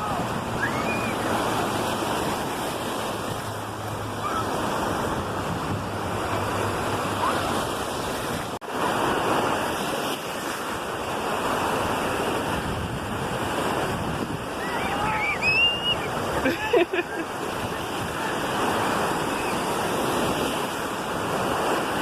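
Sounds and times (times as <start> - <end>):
wind buffeting microphone: 0.0 - 8.6, 11.8 - 16.5
ocean surf washing on beach: 0.0 - 22.0.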